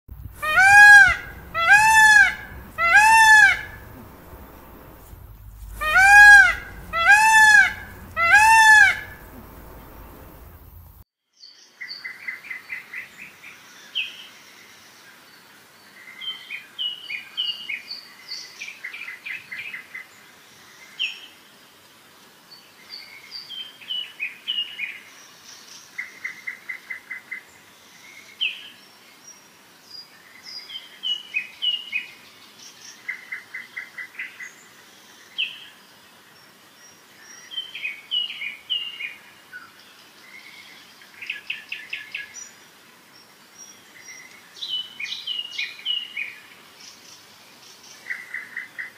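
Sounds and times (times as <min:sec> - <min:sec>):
peacock calling: 0:00.2 - 0:11.0
songbirds chirping and trilling: 0:00.3 - 0:12.8.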